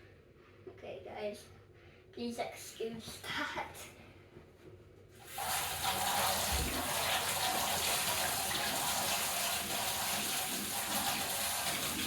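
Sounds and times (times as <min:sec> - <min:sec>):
tap water running into sink: 0:05.2 - 0:12.0.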